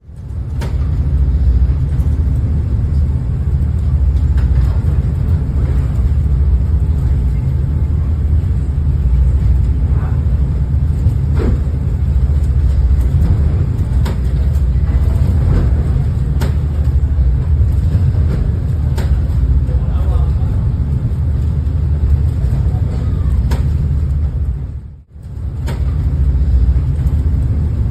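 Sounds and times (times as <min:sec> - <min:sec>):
boat engines droning: 0:00.0 - 0:27.9
sharp knocks and clatters: 0:11.0 - 0:19.4.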